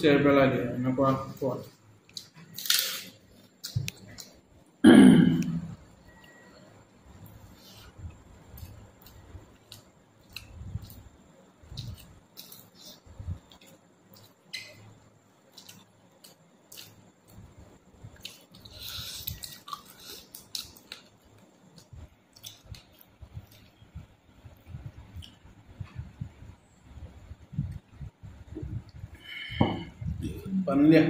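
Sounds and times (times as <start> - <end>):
close chewing and wet mouth sounds: 7.0 - 26.6.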